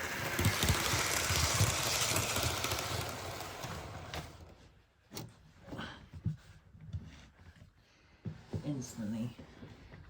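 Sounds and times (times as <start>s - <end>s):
model train whirring: 0.0s - 4.5s.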